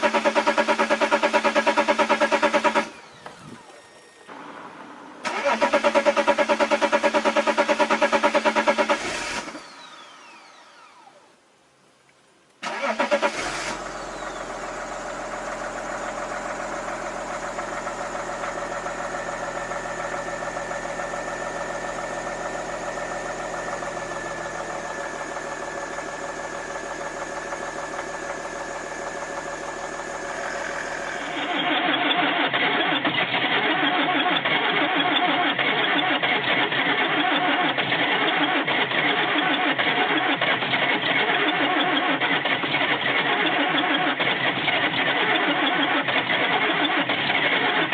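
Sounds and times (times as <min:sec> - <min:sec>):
diesel engine idling: 0:00.0 - 0:09.6, 0:12.7 - 0:32.6
loud engine running: 0:00.0 - 0:11.0, 0:12.7 - 0:47.9.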